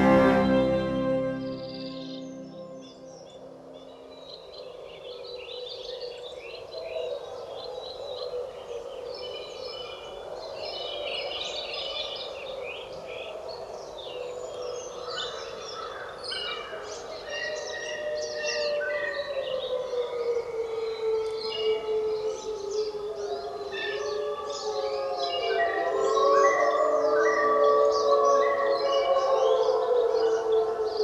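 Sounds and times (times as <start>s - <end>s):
steady low drone: 0.0s - 4.2s
chorus of birds singing: 0.0s - 31.0s.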